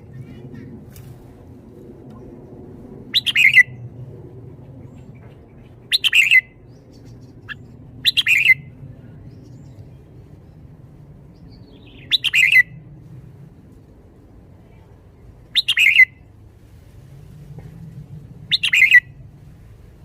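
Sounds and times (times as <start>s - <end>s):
faint low hum: 0.0s - 20.0s
bird singing bubbly phrases: 3.1s - 3.8s, 4.8s - 10.3s, 11.4s - 12.8s, 15.5s - 16.2s, 18.5s - 19.1s.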